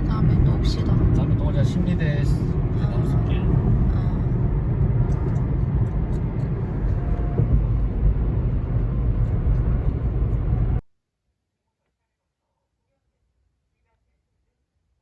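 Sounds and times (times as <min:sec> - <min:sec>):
car engine and road noise: 0:00.0 - 0:10.8.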